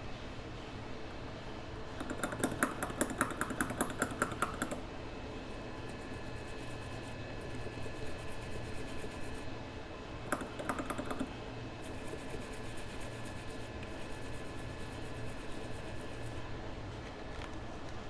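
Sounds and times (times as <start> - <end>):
faint electrical hum: 0.0 - 18.0
typing on computer keyboard: 2.0 - 4.8, 10.3 - 13.2.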